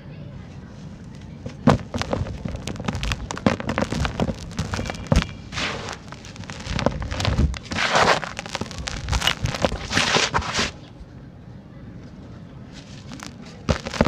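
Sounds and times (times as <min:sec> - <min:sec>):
cement chunks crumbling: 0:01.4 - 0:10.8, 0:13.0 - 0:14.0.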